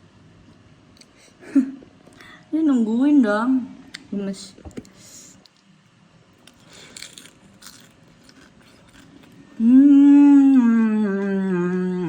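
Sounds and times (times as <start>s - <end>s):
chewing and crunching food: 6.3s - 9.6s
person humming mmm: 9.5s - 12.0s.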